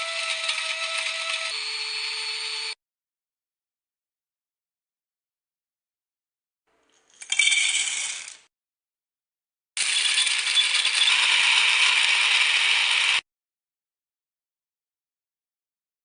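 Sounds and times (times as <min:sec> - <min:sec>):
electric grinder running: 0:00.0 - 0:02.8, 0:09.8 - 0:13.2.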